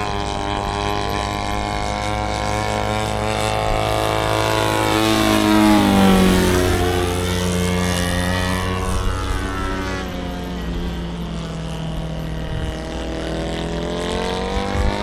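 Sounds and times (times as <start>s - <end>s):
model airplane engine flying by: 0.0s - 15.0s.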